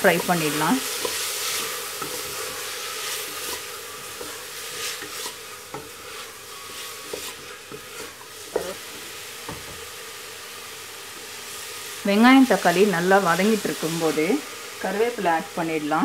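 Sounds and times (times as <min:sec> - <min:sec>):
onion and tomato sizzling in oil: 0:00.0 - 0:16.0
wooden spatula scraping and knocking pot: 0:00.1 - 0:09.9.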